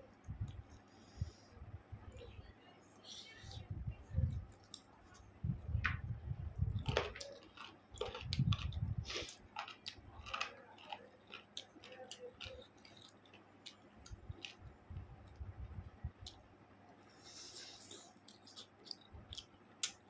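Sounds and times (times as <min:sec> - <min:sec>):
chewing and mouth smacking: 0:04.2 - 0:05.3, 0:06.6 - 0:17.0, 0:17.6 - 0:20.0.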